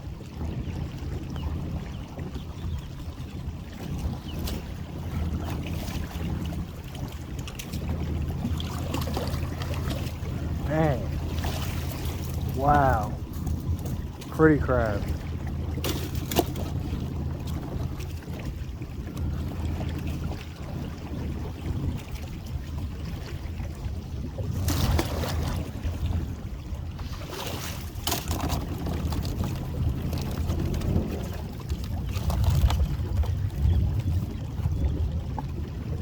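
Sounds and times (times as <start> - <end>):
boat motor running: 0.0 - 36.0
splashing and knocking: 5.4 - 14.4, 15.0 - 20.4, 24.5 - 25.8.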